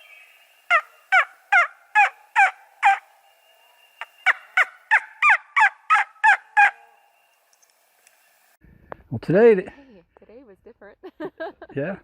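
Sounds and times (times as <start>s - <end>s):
turkey yelping: 0.7s - 3.1s, 4.0s - 6.9s.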